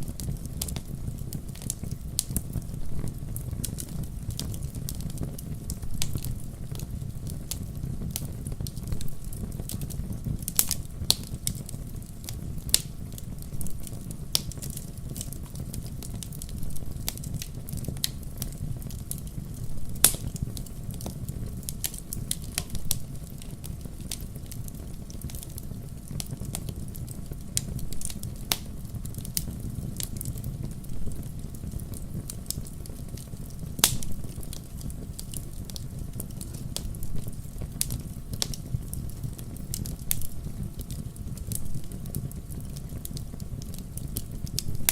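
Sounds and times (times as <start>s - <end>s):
fire flames rumbling: 0.0s - 44.9s
logs crackling and popping: 0.0s - 44.9s.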